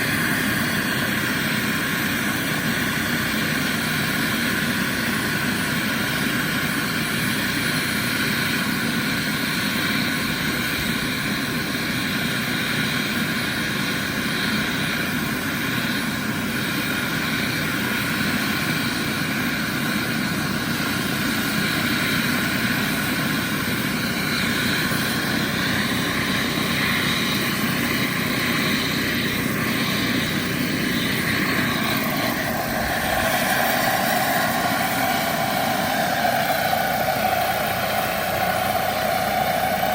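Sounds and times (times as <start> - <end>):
helicopter rotor: 0.0 - 39.9
model turbine whine: 0.0 - 39.9.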